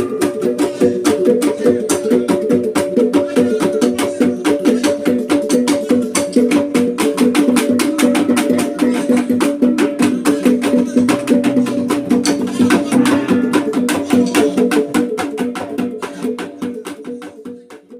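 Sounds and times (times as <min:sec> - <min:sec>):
drum fast beat: 0:00.0 - 0:17.9.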